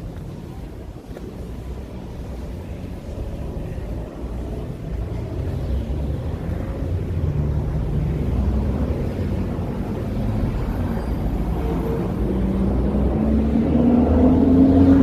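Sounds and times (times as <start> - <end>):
traffic rumble: 0.0 - 15.0
engine speeding up: 11.4 - 15.0.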